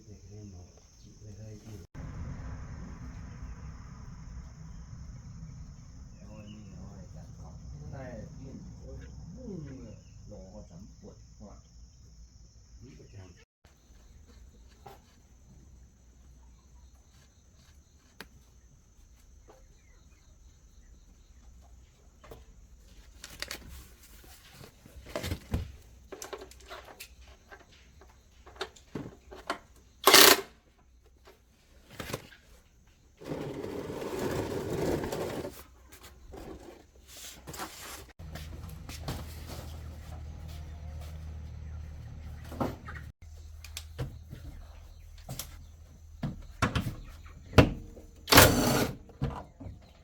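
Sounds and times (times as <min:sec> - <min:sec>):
low steady hum: 0:01.0 - 0:12.8.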